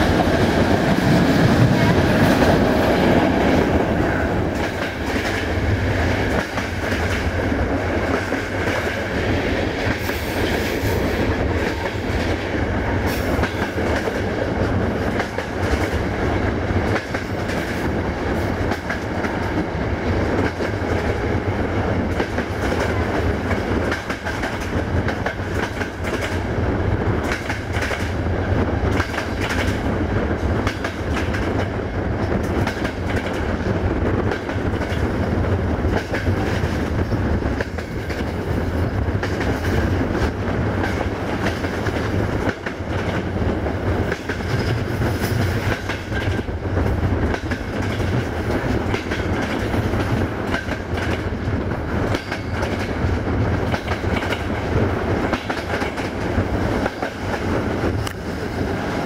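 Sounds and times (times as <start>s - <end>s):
train rumbling: 0.0s - 59.0s.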